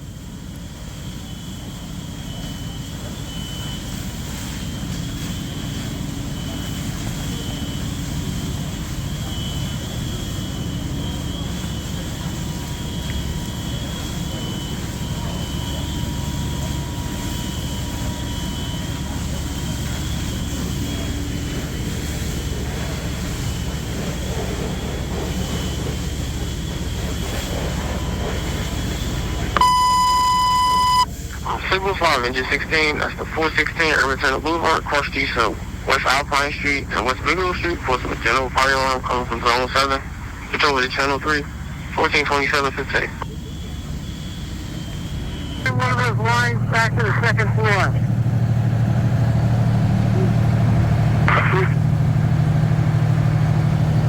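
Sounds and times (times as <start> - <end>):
fire engine rumbling: 0.0 - 54.0
faint wavering high tone: 29.6 - 31.1
radio alert beep: 29.6 - 43.4, 45.3 - 48.0, 51.2 - 51.8.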